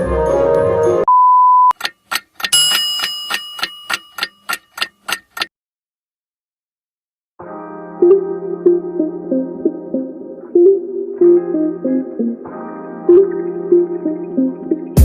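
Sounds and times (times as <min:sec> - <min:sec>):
music: 0:00.0 - 0:01.1, 0:07.4 - 0:15.0
short steady beep: 0:01.1 - 0:01.8
sharp clock-like ticks: 0:01.8 - 0:05.5
bell ding: 0:02.5 - 0:04.7.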